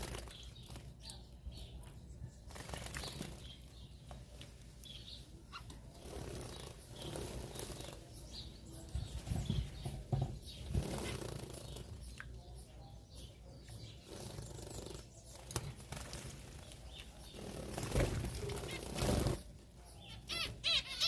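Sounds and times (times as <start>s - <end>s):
birds fluttering wings: 0.0s - 1.0s, 2.4s - 3.6s, 6.0s - 8.0s, 10.6s - 11.9s, 14.1s - 19.6s.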